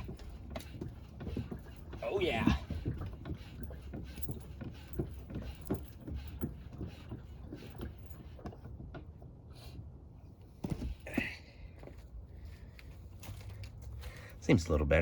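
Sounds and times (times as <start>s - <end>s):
light knocks and clunks: 0.0s - 9.4s, 10.5s - 12.1s
road and engine rumble: 0.0s - 15.0s.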